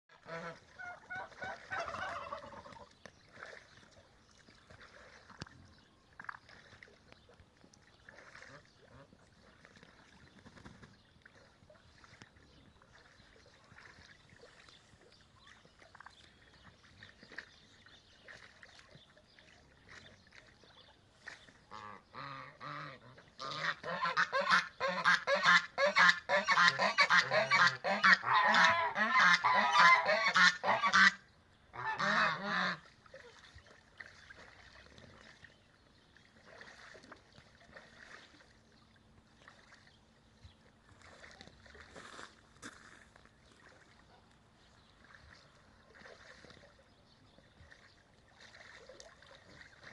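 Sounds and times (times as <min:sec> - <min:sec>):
geese honking: 0:00.1 - 0:02.9, 0:21.7 - 0:31.2, 0:31.8 - 0:32.9.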